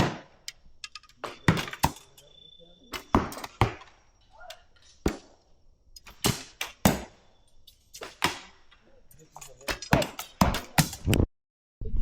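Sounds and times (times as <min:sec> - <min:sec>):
arrows striking targets: 0:00.0 - 0:02.3, 0:02.9 - 0:11.2
bows loosing arrows: 0:06.0 - 0:11.2.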